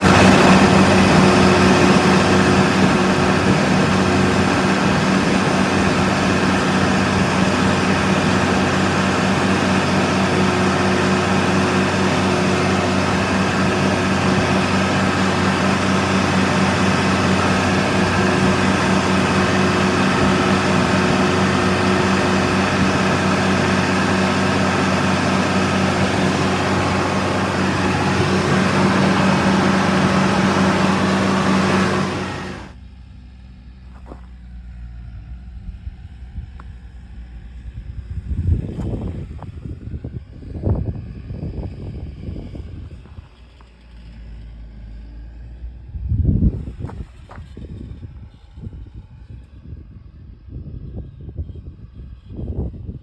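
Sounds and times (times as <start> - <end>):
tractor engine droning: 0.0 - 32.8.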